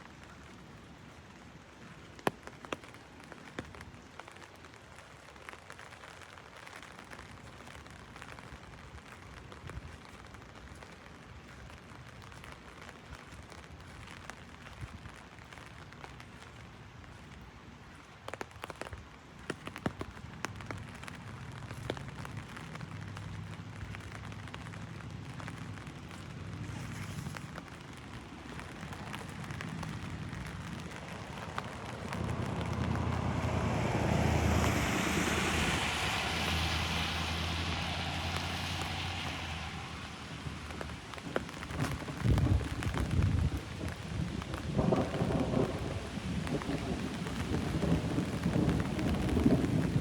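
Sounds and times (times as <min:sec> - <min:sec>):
heavy rain on an umbrella: 0:00.0 - 0:50.0
distant thunder rumble: 0:28.6 - 0:44.0, 0:44.6 - 0:50.0.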